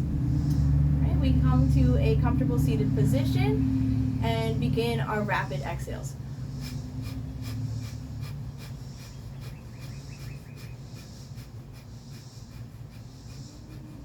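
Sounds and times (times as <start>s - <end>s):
forceful nasal exhales: 0.0s - 1.0s, 6.1s - 14.0s
steady low hum: 0.0s - 14.0s.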